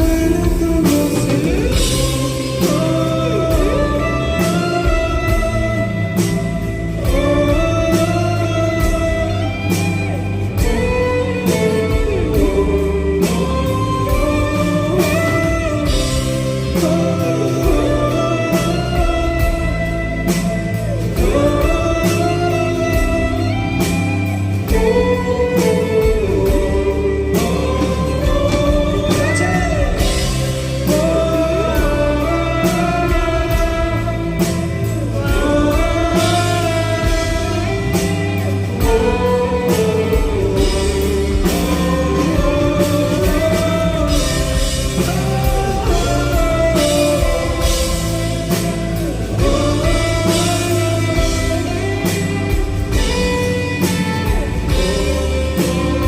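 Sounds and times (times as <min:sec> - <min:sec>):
drum kit: 0:00.0 - 0:56.0
guitar: 0:00.0 - 0:56.0.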